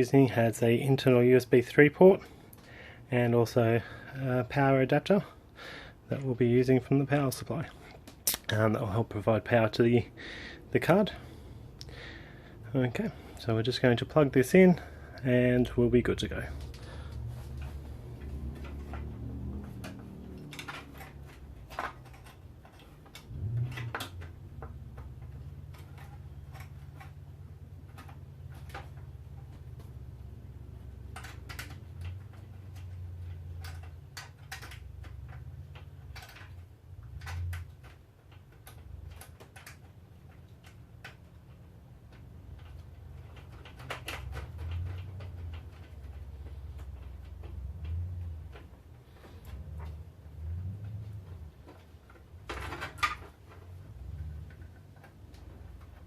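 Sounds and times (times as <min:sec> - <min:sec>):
small clicks and taps: 0:16.3 - 0:50.2.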